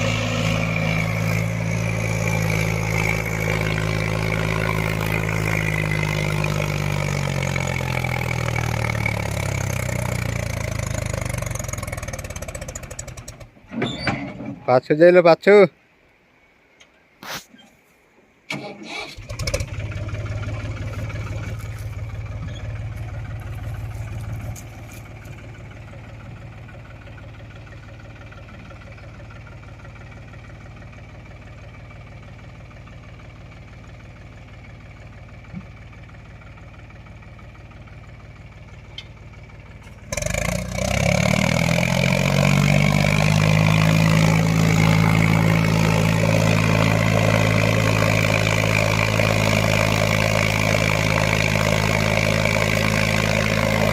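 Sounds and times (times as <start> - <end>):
engine revving up: 0.0 - 13.5, 18.5 - 25.0, 40.0 - 53.9
tractor diesel engine idling: 0.0 - 13.6, 18.5 - 53.9.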